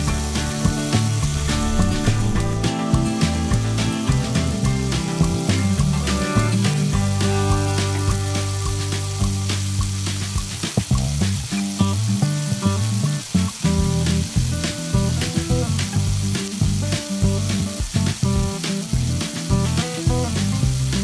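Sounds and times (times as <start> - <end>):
background music: 0.0 - 10.5
food sizzling in a frying pan: 0.0 - 21.0.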